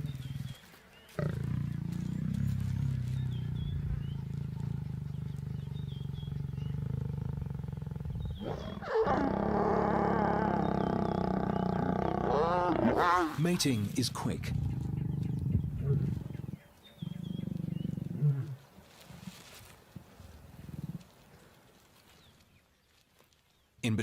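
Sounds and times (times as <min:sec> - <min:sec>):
small birds chirping: 0:00.0 - 0:09.0, 0:10.3 - 0:18.6
lions growling: 0:01.2 - 0:13.6, 0:14.2 - 0:18.6.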